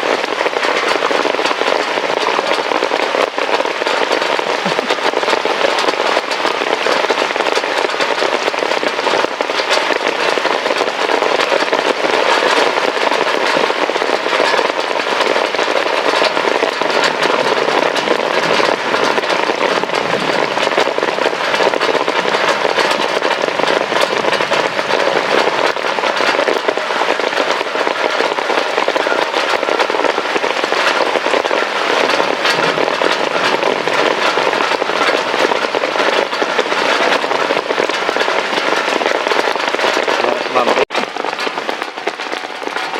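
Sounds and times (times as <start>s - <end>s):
heavy rain on hard surface: 0.0s - 42.9s.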